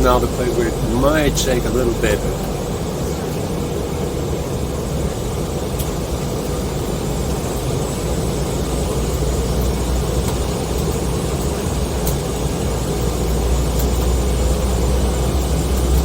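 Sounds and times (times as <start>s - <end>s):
jet airliner cabin drone: 0.0s - 16.0s.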